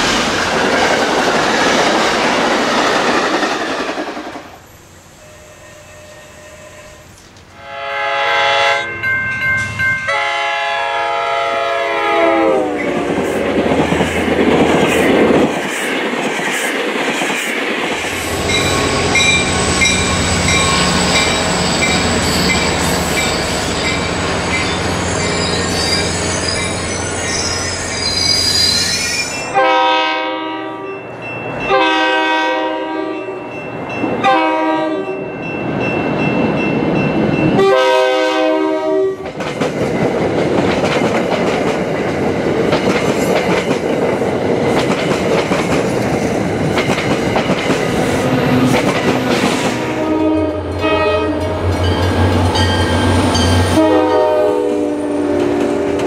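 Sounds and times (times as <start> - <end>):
train engine rumble: 0.0 - 7.6, 9.0 - 29.5, 35.3 - 56.0
high thin squeal: 4.6 - 7.2, 18.1 - 29.6
diesel train horn: 5.2 - 9.0, 10.1 - 13.1, 29.5 - 31.0, 31.7 - 33.4, 34.2 - 35.2, 37.6 - 39.2, 49.7 - 51.6, 53.6 - 56.0
wheel noise on rails: 12.7 - 29.5, 38.7 - 50.1.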